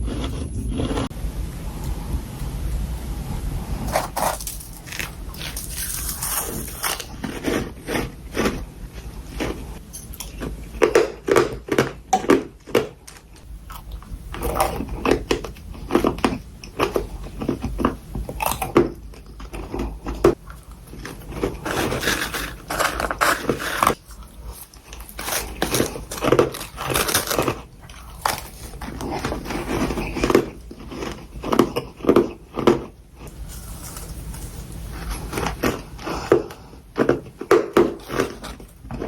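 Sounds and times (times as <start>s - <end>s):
crunching and chewing frost: 0.0s - 1.2s, 3.7s - 39.0s.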